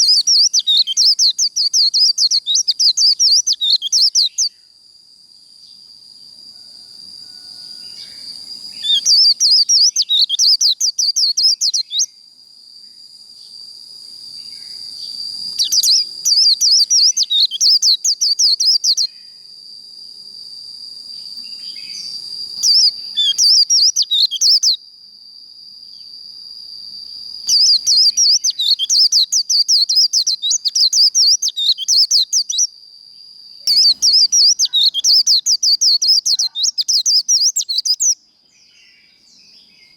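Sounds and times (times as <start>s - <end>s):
bird warbling song: 0.0s - 4.5s, 8.8s - 12.1s, 14.6s - 19.1s, 21.5s - 24.8s, 27.5s - 32.7s, 33.6s - 39.9s.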